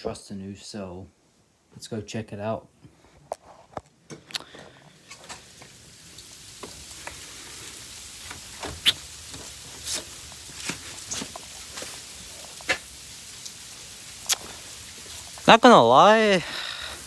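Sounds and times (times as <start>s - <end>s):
rain or sleet hissing: 4.8s - 17.0s.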